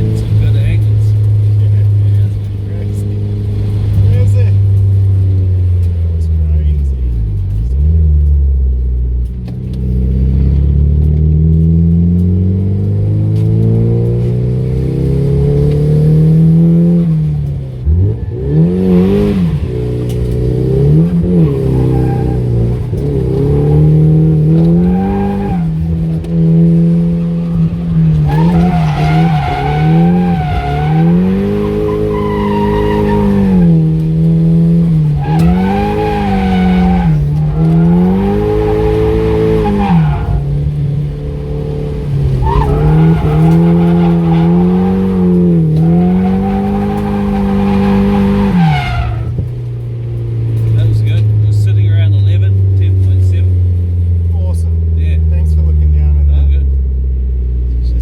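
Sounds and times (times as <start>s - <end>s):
car engine revving: 0.0s - 58.0s
tyres squealing: 18.2s - 49.7s.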